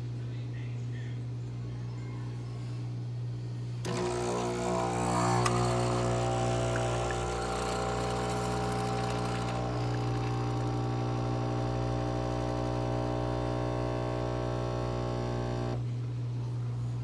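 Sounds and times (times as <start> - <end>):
espresso machine pump humming: 3.8 - 17.0.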